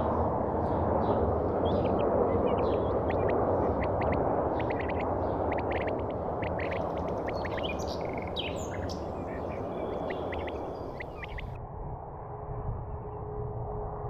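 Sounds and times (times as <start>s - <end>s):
steady low rumble: 0.0s - 14.0s
birds chirping: 0.6s - 11.6s.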